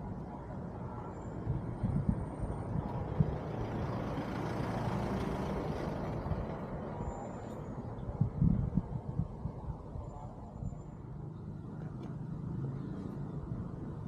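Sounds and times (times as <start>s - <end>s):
vehicle passing by: 2.9s - 7.5s.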